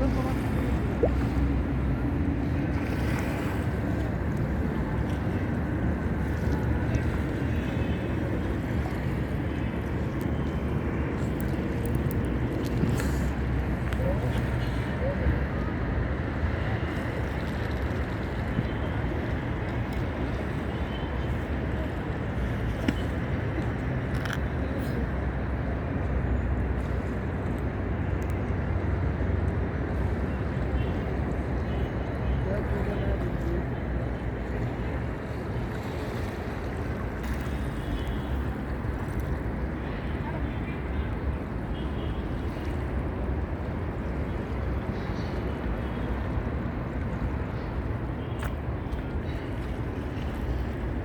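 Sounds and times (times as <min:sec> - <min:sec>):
sea waves washing: 0:00.0 - 0:25.8.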